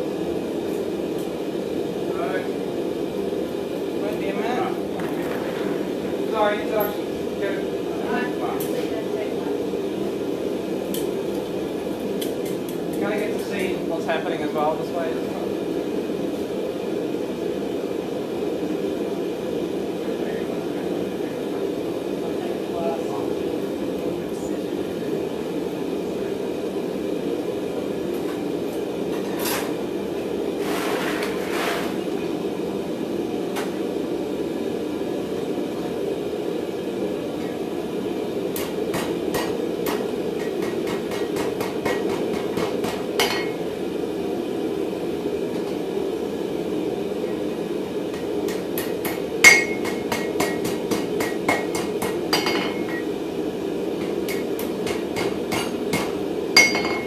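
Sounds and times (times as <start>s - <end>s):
steady rushing hum: 0.0s - 31.0s, 32.2s - 57.0s
hammer striking steel bar: 48.8s - 53.0s, 54.3s - 57.0s.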